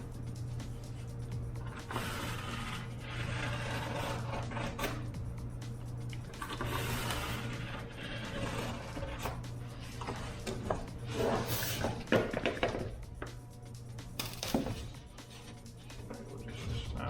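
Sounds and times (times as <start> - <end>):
low steady hum: 0.0 - 17.0
knife sawing through foam: 1.7 - 5.1, 6.4 - 9.3.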